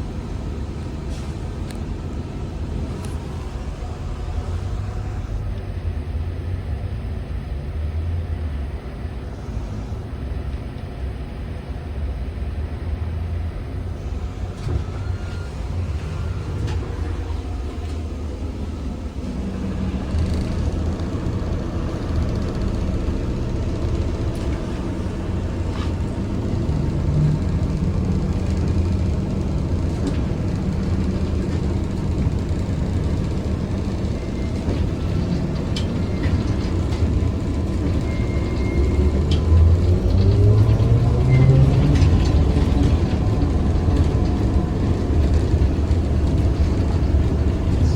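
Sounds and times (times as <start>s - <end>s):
trolleybus rumbling: 0.0s - 47.9s.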